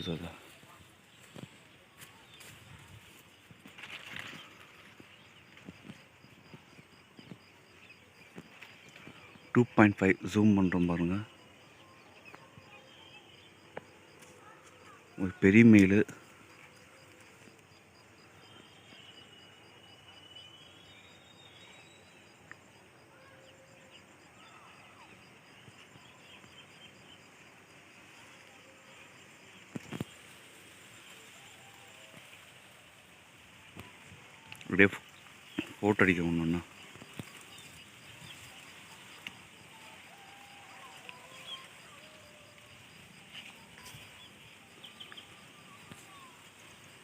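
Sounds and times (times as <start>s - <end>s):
faint birdsong chirps: 0.0s - 47.0s
small bird chirps: 43.4s - 46.7s.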